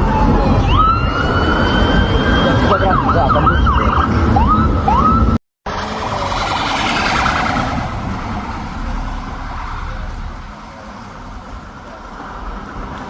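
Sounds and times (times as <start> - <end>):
pulsing emergency siren: 0.0 - 9.9
low rumble of traffic: 0.0 - 13.0.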